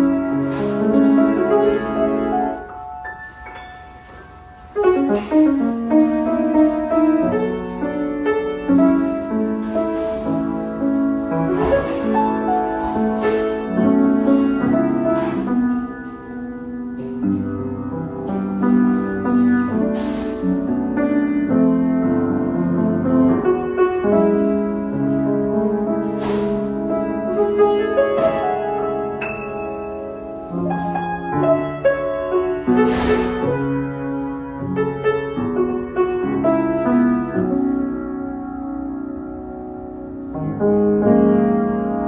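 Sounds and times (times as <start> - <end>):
solo piano playing: 0.0 - 42.0.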